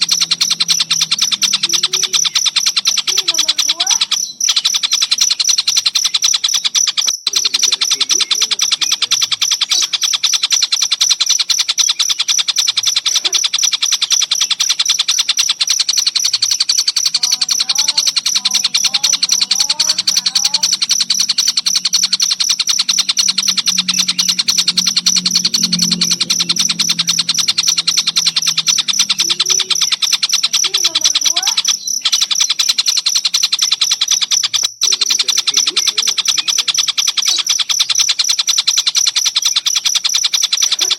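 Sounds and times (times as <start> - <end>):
cricket chirping: 0.0 - 40.9
faint bird notes: 0.0 - 40.9
low hum: 20.0 - 29.8.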